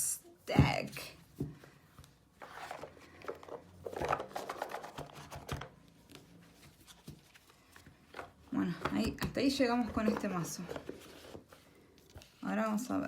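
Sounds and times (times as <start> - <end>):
cards rustling and tapping: 1.3 - 12.4.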